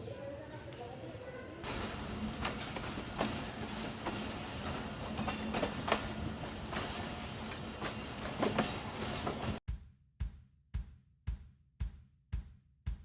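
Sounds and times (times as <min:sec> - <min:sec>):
train rumbling on track: 0:01.6 - 0:09.6
wheels clicking over rails: 0:01.6 - 0:09.6.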